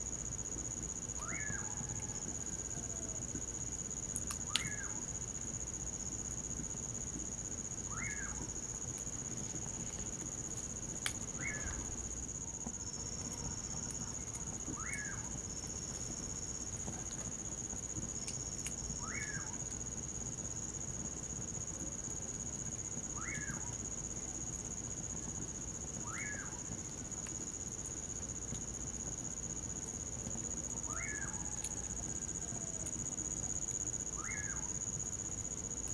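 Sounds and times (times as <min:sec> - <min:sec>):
crickets trilling: 0:00.0 - 0:35.9
bird whistled call: 0:07.9 - 0:08.4, 0:11.4 - 0:11.8.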